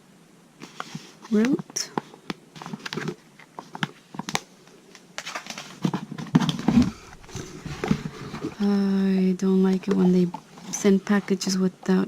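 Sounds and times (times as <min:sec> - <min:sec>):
packaging rustling: 0:02.6 - 0:08.6.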